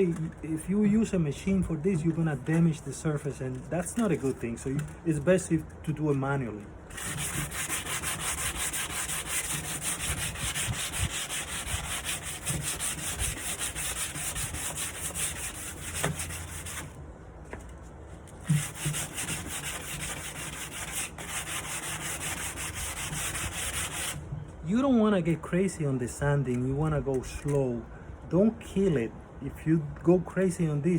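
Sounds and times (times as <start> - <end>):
sandpaper rubbing on wood: 6.9 - 16.9, 18.4 - 24.2.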